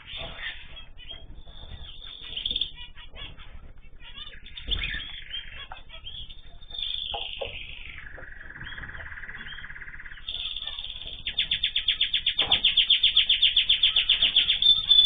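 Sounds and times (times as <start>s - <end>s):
birds chirping and calling: 0.0s - 15.0s.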